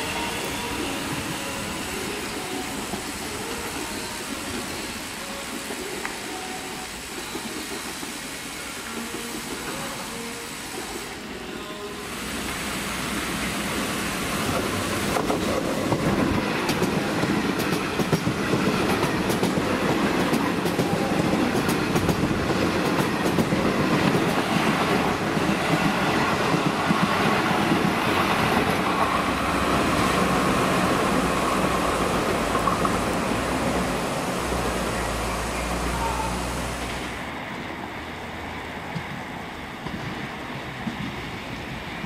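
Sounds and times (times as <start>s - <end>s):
train wheels rumbling: 12.1s - 42.0s.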